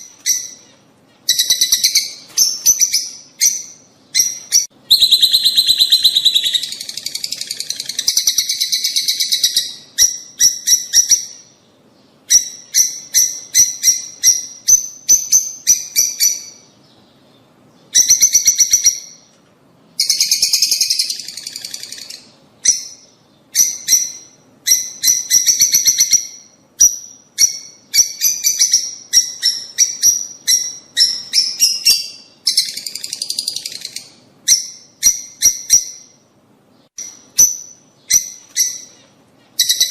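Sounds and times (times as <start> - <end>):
lovebirds shrill chirping: 0.0 - 11.6, 20.0 - 36.2, 36.9 - 39.9.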